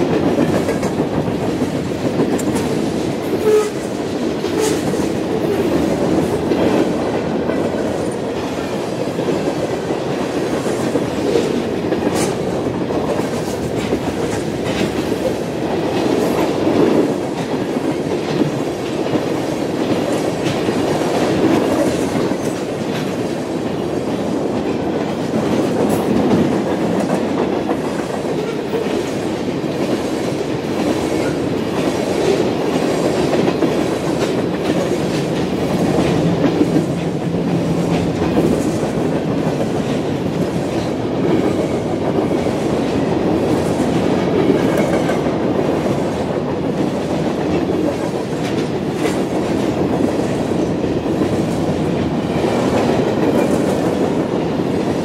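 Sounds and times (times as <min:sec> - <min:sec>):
train wheels clicking over rails: 0:00.0 - 0:55.0.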